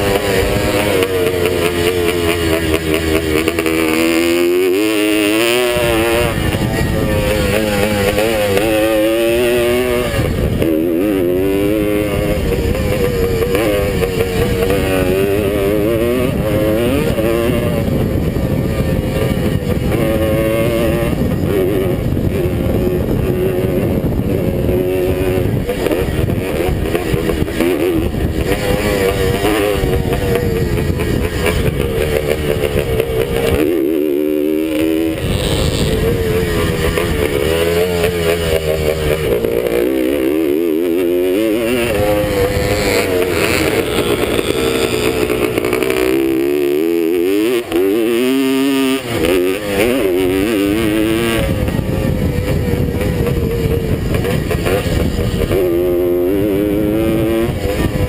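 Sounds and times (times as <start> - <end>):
motorbike engine revving: 0.0 - 58.0.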